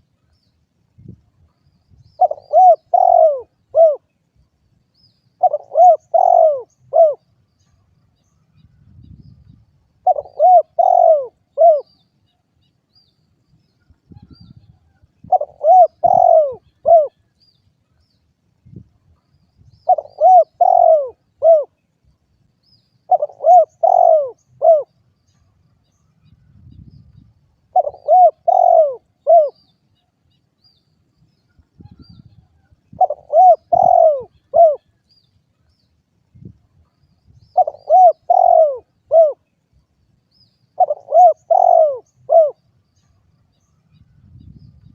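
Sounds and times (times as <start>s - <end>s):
dove cooing: 2.2s - 4.1s, 5.4s - 7.2s, 10.0s - 12.0s, 15.2s - 17.2s, 19.8s - 21.8s, 23.1s - 24.9s, 27.7s - 29.7s, 32.9s - 34.9s, 37.5s - 39.5s, 40.8s - 42.7s.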